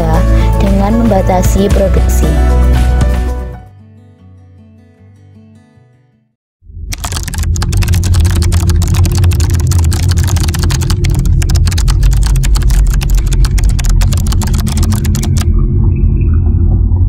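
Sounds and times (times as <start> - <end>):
low rumble: 6.8 - 17.0
keyboard typing clicks: 6.9 - 15.5.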